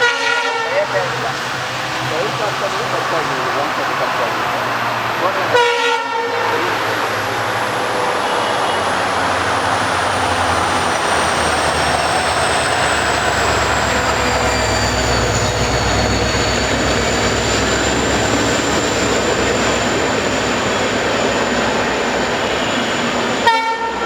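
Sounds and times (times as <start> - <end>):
train coaches rumbling on rails: 0.0 - 24.0
high squeal: 6.5 - 24.0.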